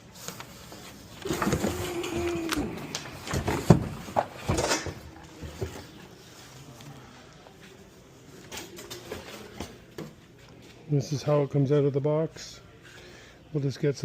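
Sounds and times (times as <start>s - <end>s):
knocks and clicks of packaging: 1.2s - 6.0s.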